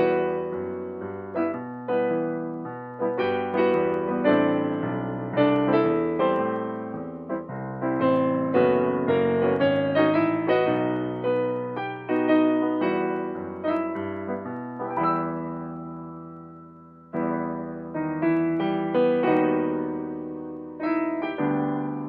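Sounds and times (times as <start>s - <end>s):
solo piano ballad: 0.0s - 22.0s.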